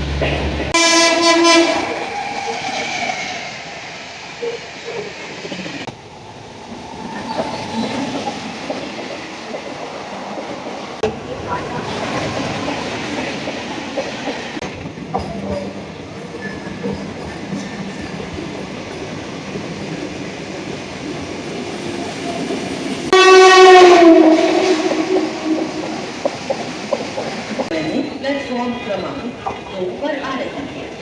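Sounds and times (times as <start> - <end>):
wheels clacking over rail joints: 0.0 - 27.8
train rumbling: 0.0 - 31.0
locomotive horn: 0.7 - 2.2, 23.1 - 26.2.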